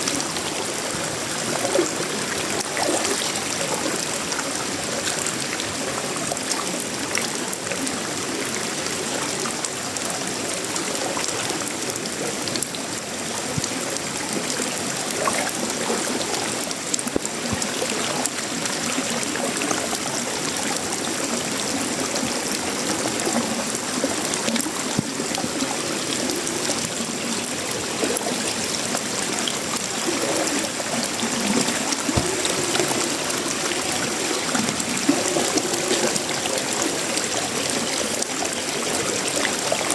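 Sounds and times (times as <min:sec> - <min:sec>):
rain on metal roof and leaves: 0:00.0 - 0:39.9.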